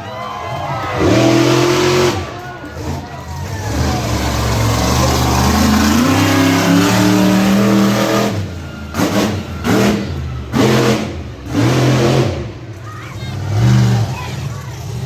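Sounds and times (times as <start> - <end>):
monster truck engine revving: 0.0 - 15.0.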